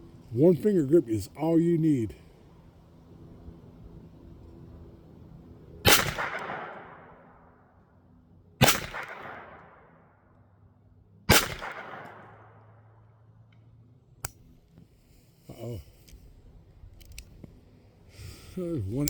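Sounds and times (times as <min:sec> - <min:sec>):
pistol shots echoing: 0:05.8 - 0:07.4, 0:08.6 - 0:10.1, 0:11.3 - 0:12.9.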